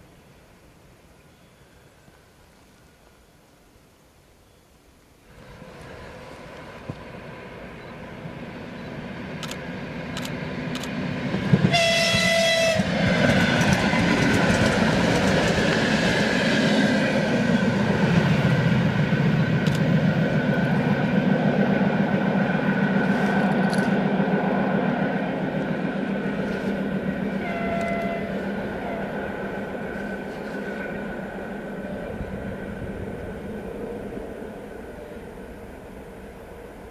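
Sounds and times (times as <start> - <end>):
train wheel and rail noise: 5.2 - 36.9
train approaching rumble: 5.3 - 36.9
train horn blast: 11.6 - 13.6, 27.3 - 29.6.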